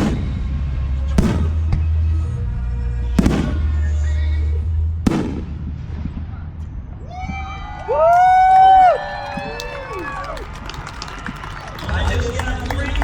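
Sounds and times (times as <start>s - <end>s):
music with deep bass: 0.0s - 6.6s
fireworks bursting: 0.0s - 7.7s.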